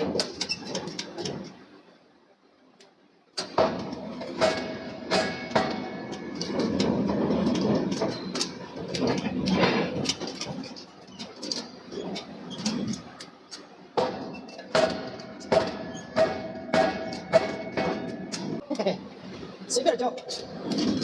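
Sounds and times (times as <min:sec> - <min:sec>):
sharp metal knocks: 0:03.4 - 0:08.5, 0:14.0 - 0:18.6
machinery clattering: 0:03.4 - 0:21.0.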